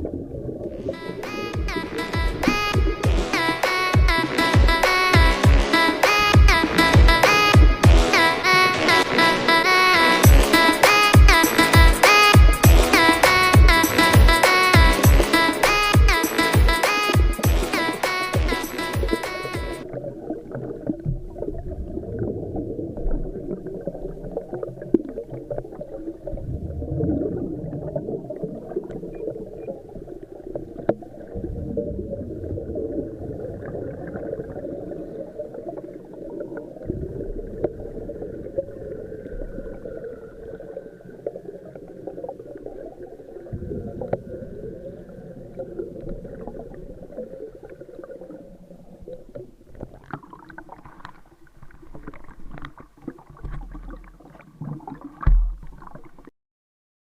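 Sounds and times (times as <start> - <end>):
low gurgling swells: 0.0 - 1.0, 19.9 - 28.9
muffled underwater water and bubbles: 0.0 - 56.3.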